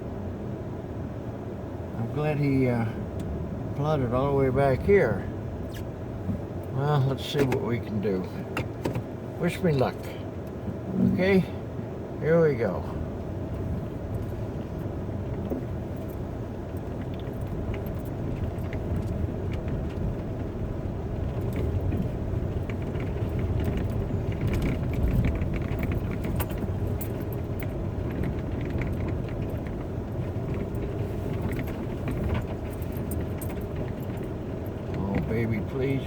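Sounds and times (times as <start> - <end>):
car engine droning under load: 0.0 - 36.0
light rattles: 12.9 - 36.0.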